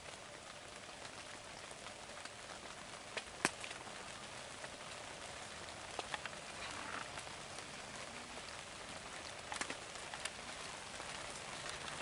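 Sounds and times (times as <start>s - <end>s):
light rain on dead leaves: 0.0s - 12.0s
sharp rain ticks: 0.0s - 12.0s.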